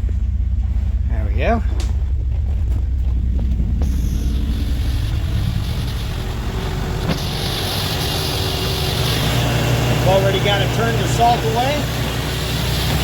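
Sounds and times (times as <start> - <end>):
boat engine idling: 0.0 - 13.0
steady hiss: 3.8 - 13.0.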